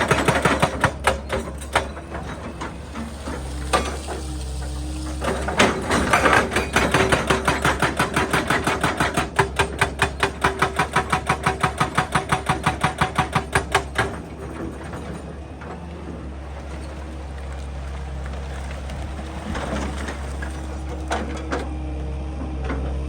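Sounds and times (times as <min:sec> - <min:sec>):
hydraulic breaker hammering rock: 0:00.0 - 0:02.8, 0:05.2 - 0:15.2
excavator engine humming: 0:00.0 - 0:23.0.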